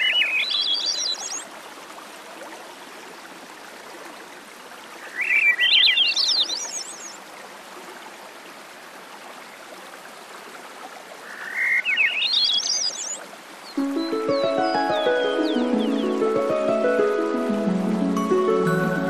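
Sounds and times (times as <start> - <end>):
songbird singing: 0.0 - 1.5, 5.0 - 7.2, 11.3 - 19.0.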